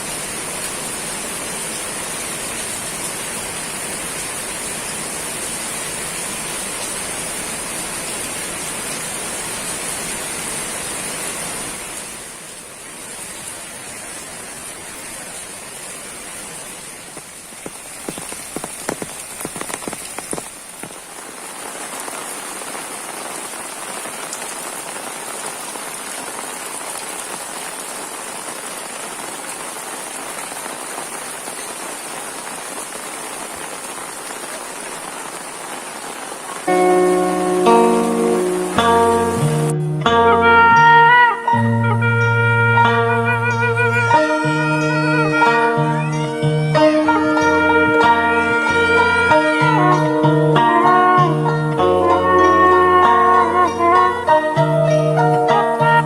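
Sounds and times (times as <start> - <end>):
steady rain falling: 0.0 - 56.0
sharp close drips: 13.2 - 21.2.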